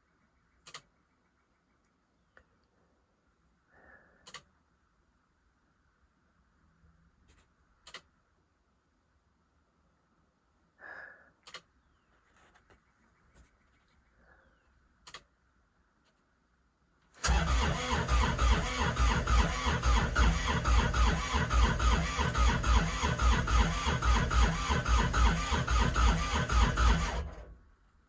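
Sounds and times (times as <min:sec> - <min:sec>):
faint clicks: 0:00.6 - 0:00.9, 0:04.2 - 0:04.6, 0:07.3 - 0:08.1, 0:11.4 - 0:11.7, 0:15.0 - 0:15.3
diesel engine cranking: 0:17.2 - 0:27.6.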